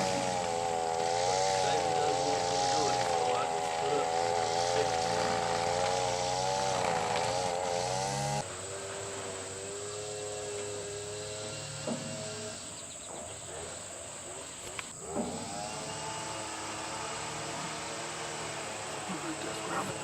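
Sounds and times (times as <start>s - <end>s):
tractor engine idling: 0.0s - 9.5s.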